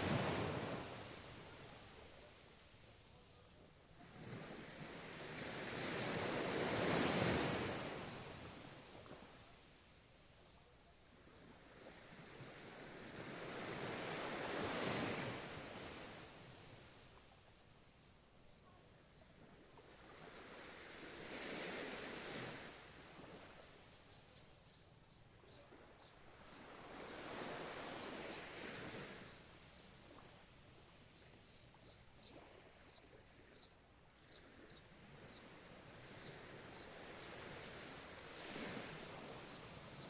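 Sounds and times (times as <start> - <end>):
ocean waves breaking: 0.0 - 2.4, 4.0 - 9.4, 11.6 - 16.9, 19.8 - 23.4, 25.7 - 30.6, 34.4 - 40.0.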